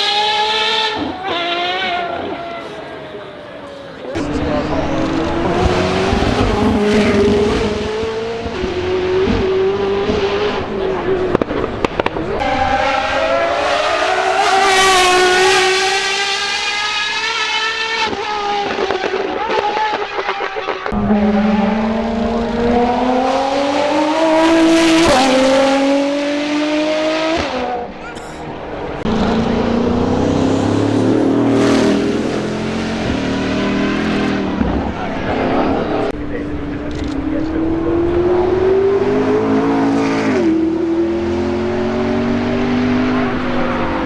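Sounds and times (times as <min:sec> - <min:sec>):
car engine accelerating hard: 0:04.1 - 0:44.0.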